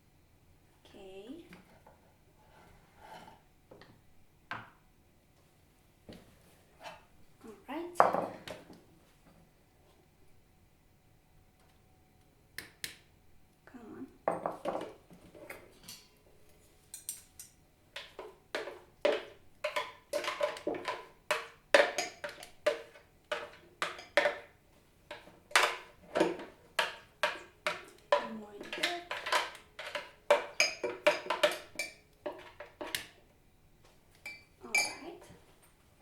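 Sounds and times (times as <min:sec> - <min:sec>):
utensil knocking and scraping dishes: 0:14.3 - 0:16.2, 0:17.0 - 0:33.2, 0:34.2 - 0:35.4.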